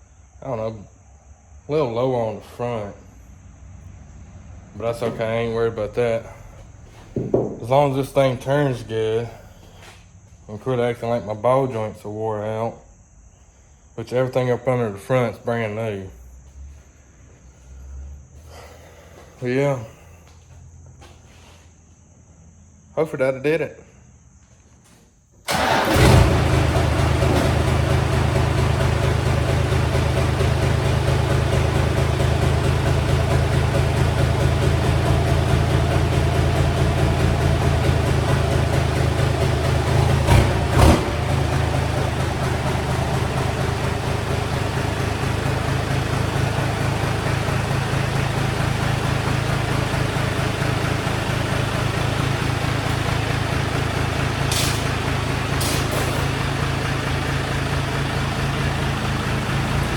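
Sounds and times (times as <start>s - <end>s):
truck engine rumbling: 1.8s - 10.1s, 25.5s - 59.9s
sharp knocks: 7.1s - 7.8s.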